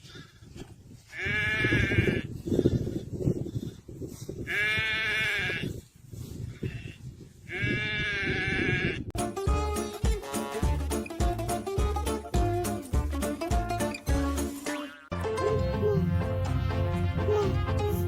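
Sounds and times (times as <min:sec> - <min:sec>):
sheep bleating: 0:01.1 - 0:02.2, 0:04.5 - 0:05.7, 0:07.5 - 0:09.1.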